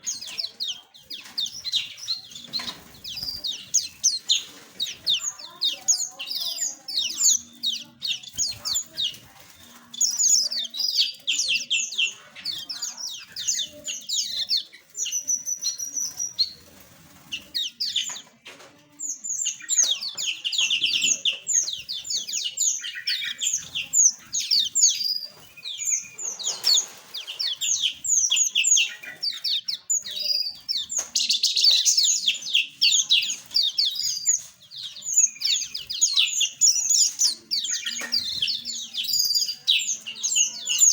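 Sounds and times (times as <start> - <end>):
small birds twittering: 0.0 - 40.9
wings fluttering: 25.3 - 28.3.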